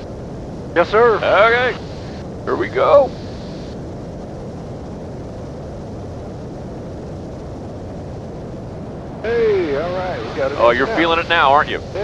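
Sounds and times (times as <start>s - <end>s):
propeller plane engines droning: 0.0s - 12.0s.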